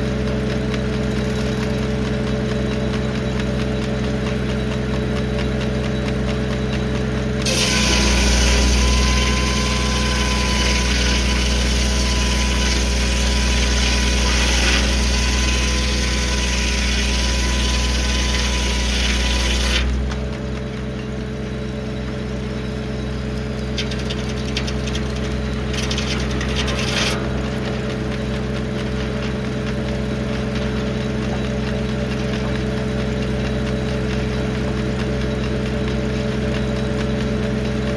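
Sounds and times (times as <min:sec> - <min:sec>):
tractor engine running: 0:00.0 - 0:37.9
circular saw cutting log: 0:04.9 - 0:20.8, 0:23.0 - 0:37.3.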